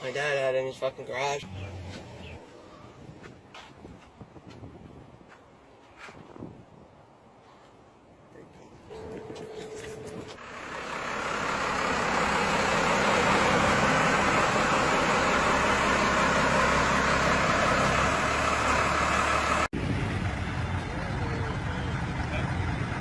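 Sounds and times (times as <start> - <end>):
quieter vehicle sound: 7.1 - 23.0
heavy truck engine under load: 8.8 - 23.0.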